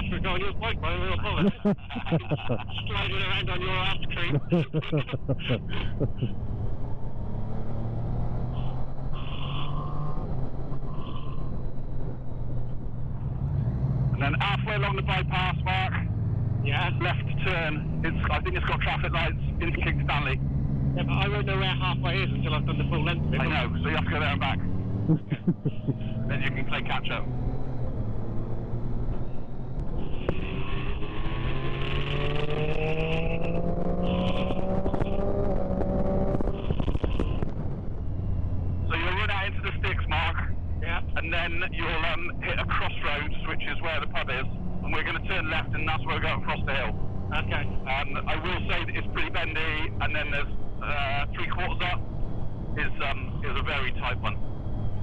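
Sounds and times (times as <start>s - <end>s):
wind and road noise: 0.0s - 55.0s
wind noise: 29.4s - 38.6s
motorcycle engine running: 29.8s - 37.6s.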